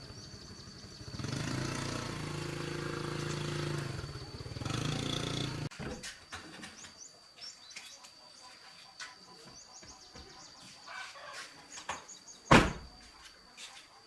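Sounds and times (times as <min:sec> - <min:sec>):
small birds chirping: 0:00.0 - 0:14.0
loud thump: 0:12.5 - 0:13.0.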